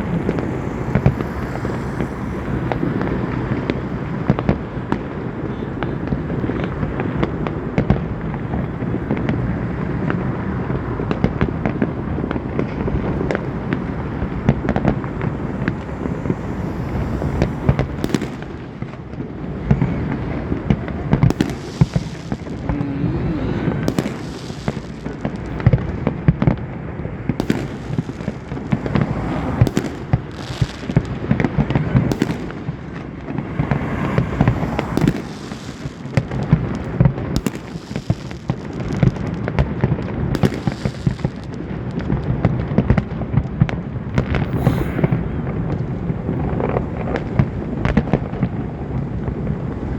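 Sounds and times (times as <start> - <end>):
low rumble: 0.0 - 4.8, 11.8 - 21.3, 31.8 - 35.8, 44.2 - 46.6
sharp firework reports: 0.0 - 42.4, 43.3 - 49.9
fireworks bangs and crackles: 0.0 - 49.9.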